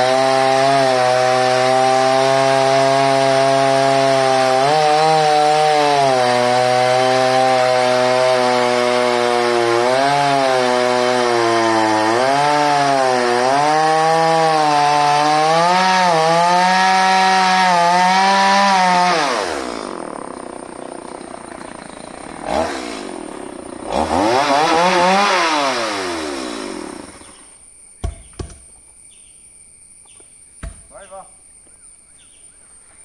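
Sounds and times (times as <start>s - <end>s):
chainsaw revving and idling: 0.0s - 27.6s.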